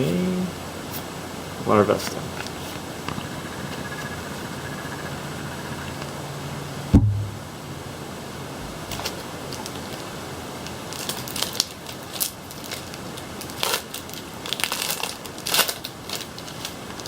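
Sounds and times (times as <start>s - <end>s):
steady background hiss: 0.0s - 17.0s
foil wrapper crinkling and tearing: 10.6s - 17.0s.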